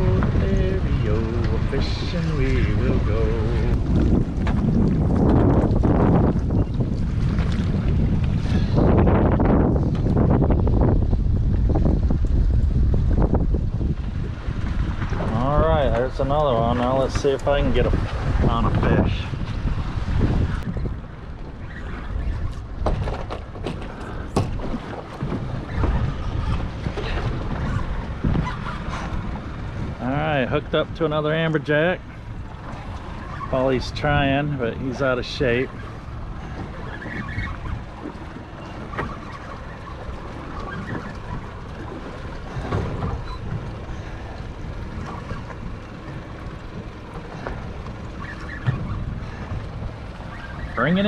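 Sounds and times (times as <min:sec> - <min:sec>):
sea wash: 0:00.0 - 0:51.0
wind buffeting microphone: 0:00.0 - 0:51.0
sharp knocks and clicks: 0:22.8 - 0:26.0.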